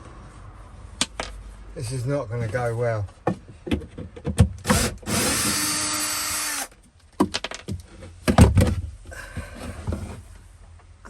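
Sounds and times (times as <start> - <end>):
power drill running: 4.7 - 6.7.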